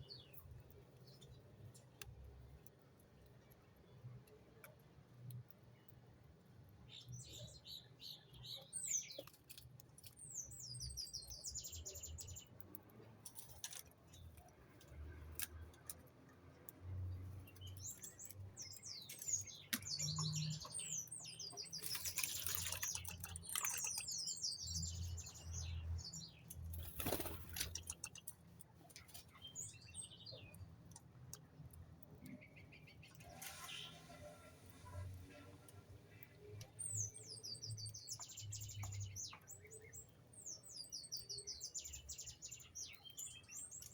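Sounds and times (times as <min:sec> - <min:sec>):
small birds chirping: 0:00.0 - 0:43.9
wings fluttering: 0:21.8 - 0:23.8, 0:26.7 - 0:28.2.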